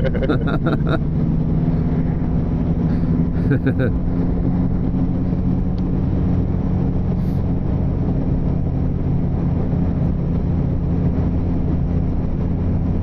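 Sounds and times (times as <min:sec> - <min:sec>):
motorcycle engine droning: 0:00.0 - 0:09.4
road noise: 0:00.0 - 0:13.0
wind rush: 0:00.0 - 0:13.0.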